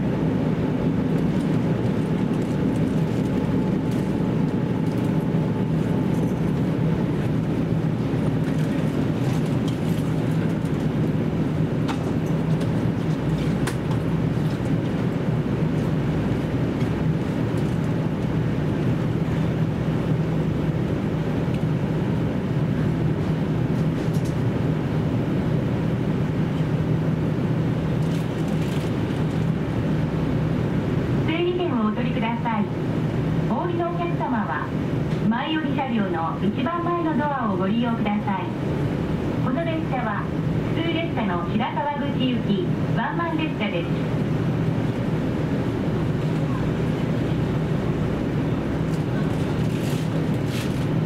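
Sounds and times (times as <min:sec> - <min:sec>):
railcar engine and running hum: 0:00.0 - 0:51.0
wheel-on-rail noise: 0:48.8 - 0:51.0.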